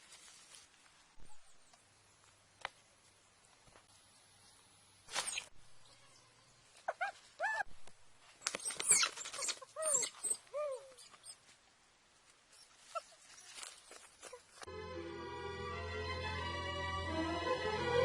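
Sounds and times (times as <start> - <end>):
rustling: 0.0 - 1.2, 8.2 - 14.7.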